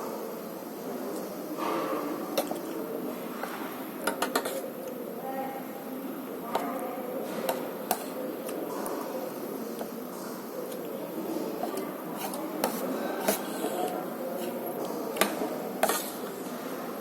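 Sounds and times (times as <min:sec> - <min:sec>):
murmur of voices: 0:00.0 - 0:17.0
cutlery clinking against plates: 0:03.4 - 0:04.7, 0:11.4 - 0:16.3.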